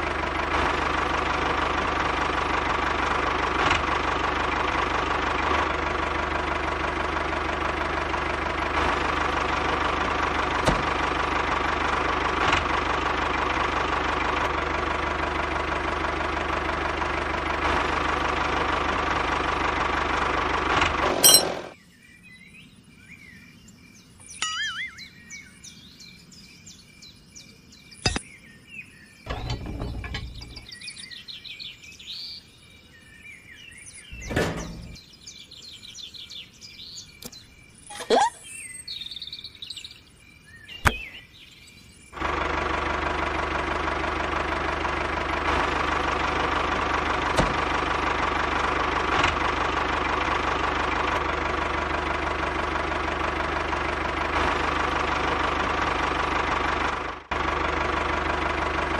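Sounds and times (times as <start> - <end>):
model tractor engine running: 0.0 - 21.7, 42.2 - 58.9
birds chirping: 21.1 - 42.2.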